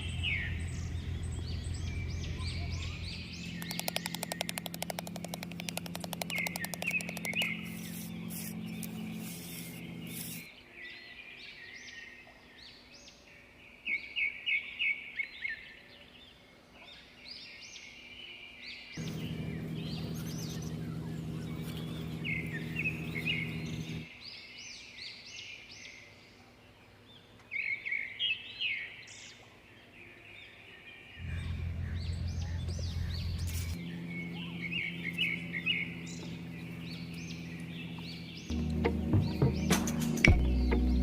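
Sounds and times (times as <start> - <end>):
low steady hum: 0.0 - 10.5, 19.0 - 24.1, 31.2 - 41.0
small birds chirping: 0.0 - 41.0.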